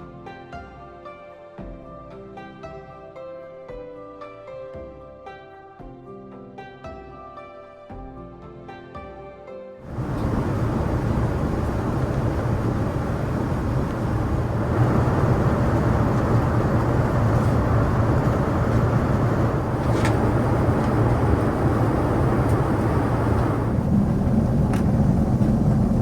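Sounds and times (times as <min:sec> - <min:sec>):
airliner cabin engine and airflow: 0:09.9 - 0:26.0.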